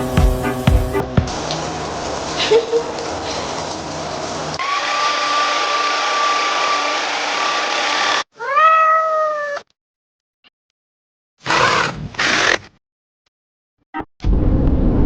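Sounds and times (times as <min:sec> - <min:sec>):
cat meowing: 0:08.4 - 0:09.7.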